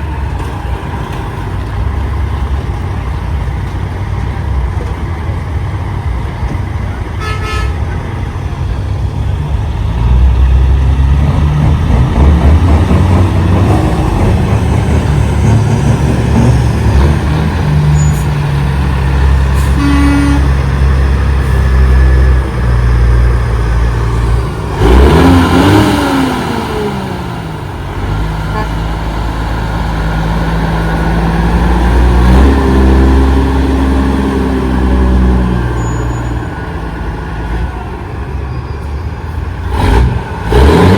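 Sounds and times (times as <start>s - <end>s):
truck engines rumbling: 0.0s - 40.9s
truck horn toots: 7.2s - 7.9s, 19.5s - 20.8s, 28.5s - 28.8s.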